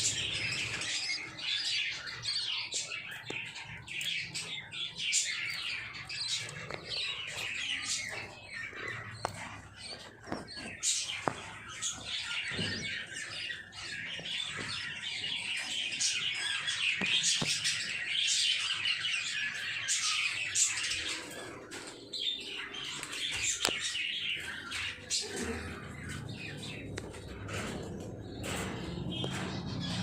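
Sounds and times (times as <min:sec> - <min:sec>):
lovebirds chattering: 0:00.0 - 0:30.0.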